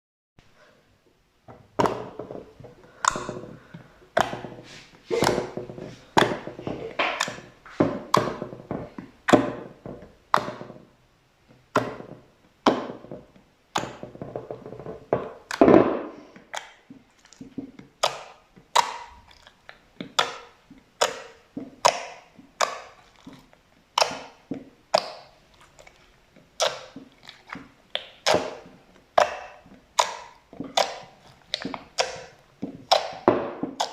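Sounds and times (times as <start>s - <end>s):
slime popping and clicking: 16.5s - 33.9s.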